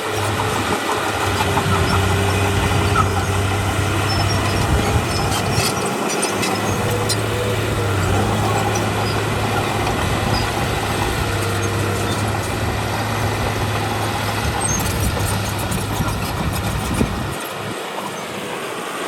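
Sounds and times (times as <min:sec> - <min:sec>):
diesel machinery engine hum: 0:00.0 - 0:19.0.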